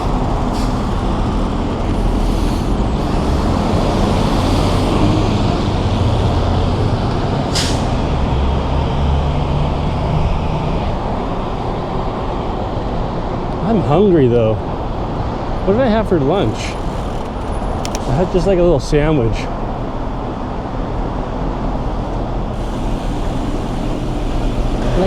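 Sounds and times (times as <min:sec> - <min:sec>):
heavy vehicle engine rumble: 0:00.0 - 0:25.0
wind and road noise: 0:00.0 - 0:25.0
short sharp hiss: 0:07.5 - 0:08.0.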